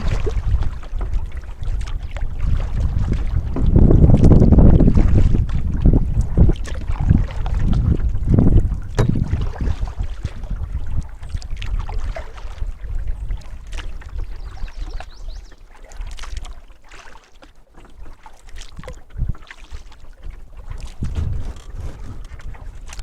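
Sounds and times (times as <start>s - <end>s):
wind rumble on microphone: 0.0s - 16.6s, 18.0s - 23.0s
paddle splashes and drips: 0.0s - 23.0s.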